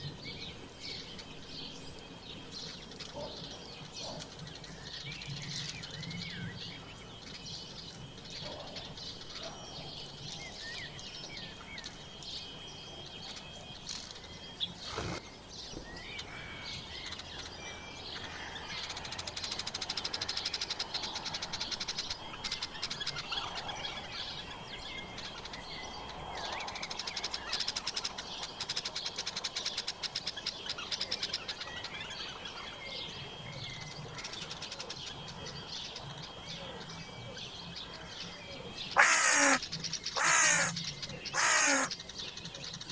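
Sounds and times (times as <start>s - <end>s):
birds chirping and singing: 0.0s - 42.9s
high ticking bird chatter: 16.2s - 23.7s, 37.7s - 42.9s.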